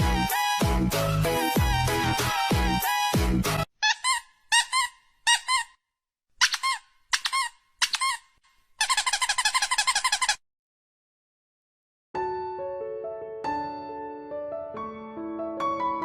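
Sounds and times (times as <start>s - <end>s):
short high squeaks: 3.8s - 5.8s, 6.4s - 10.4s.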